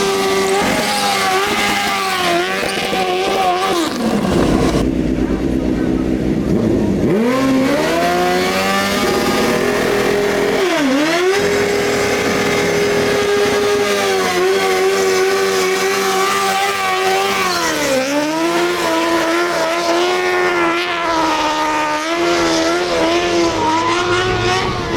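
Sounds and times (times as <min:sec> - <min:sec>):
motorbike engine revving: 0:00.0 - 0:24.9.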